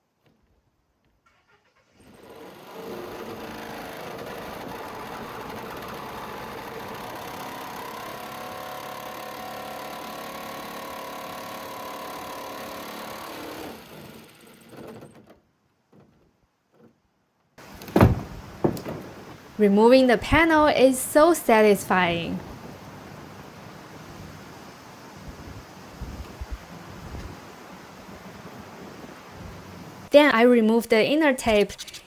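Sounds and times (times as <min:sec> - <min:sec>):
jigsaw cutting sheet steel: 0:02.0 - 0:15.0
sharp loud knock: 0:17.8 - 0:19.3.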